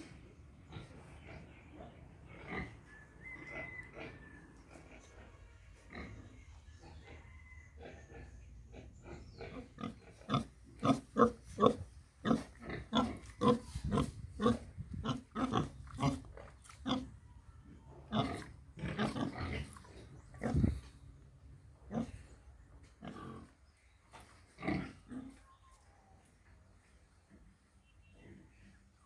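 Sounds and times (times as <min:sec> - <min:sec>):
pigs grunting and squealing: 0:00.6 - 0:17.2, 0:18.0 - 0:20.9, 0:23.0 - 0:23.6, 0:24.6 - 0:25.4.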